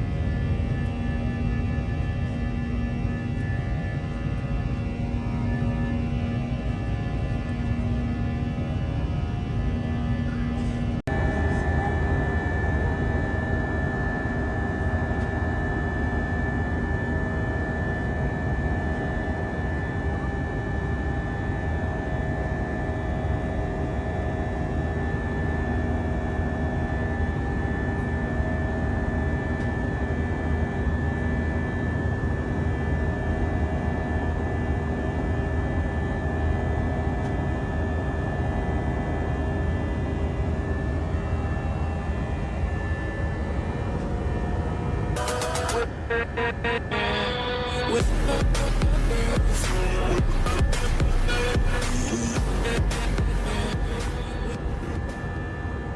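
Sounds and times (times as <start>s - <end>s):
jet engines droning in cabin: 0.0s - 55.9s
whining tones: 40.8s - 55.9s.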